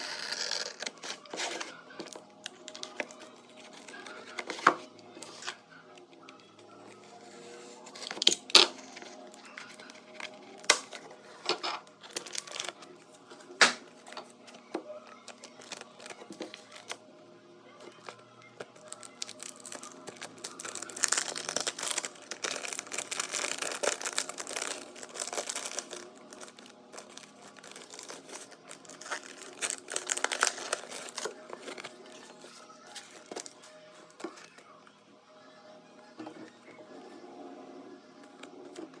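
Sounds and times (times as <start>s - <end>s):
packaging crinkling: 0.0s - 5.5s, 12.0s - 13.0s, 15.1s - 17.0s, 17.8s - 34.6s.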